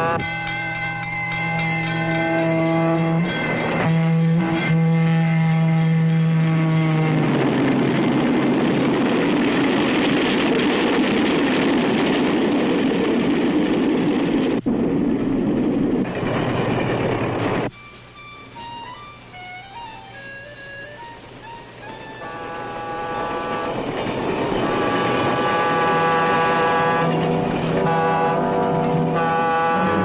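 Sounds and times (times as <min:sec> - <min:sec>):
locomotive air horn: 0:00.0 - 0:08.2, 0:20.2 - 0:30.0
freight train rushing past: 0:00.0 - 0:30.0.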